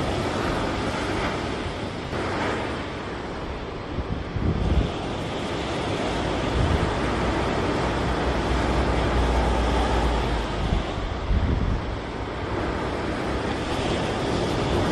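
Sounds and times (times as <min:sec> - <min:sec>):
small ocean waves breaking: 0:00.0 - 0:14.9
wind rumbling on microphone: 0:00.0 - 0:14.9.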